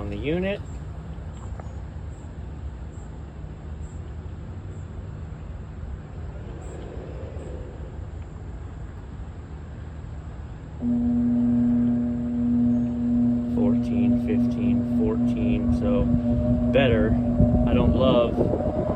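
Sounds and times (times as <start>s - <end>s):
exhaust fan motor humming: 10.8s - 18.9s
low rumble: 10.8s - 18.9s.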